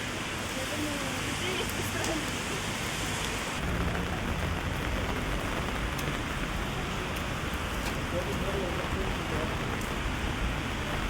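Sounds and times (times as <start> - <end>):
heavy rain on an umbrella: 0.0 - 11.0
low rumble: 3.6 - 11.0.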